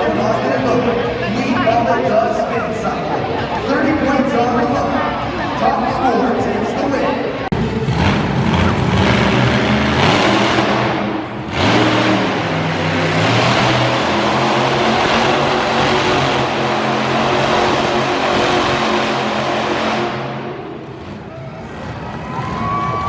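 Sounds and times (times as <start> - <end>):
truck engine revving hard: 7.5 - 23.0.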